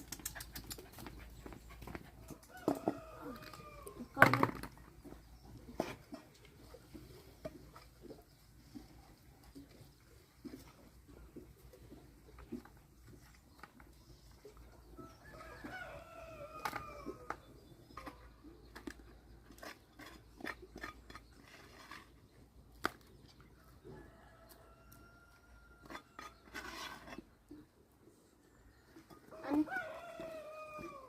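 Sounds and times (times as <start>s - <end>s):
rooster crowing: 2.5s - 4.0s, 29.4s - 31.0s.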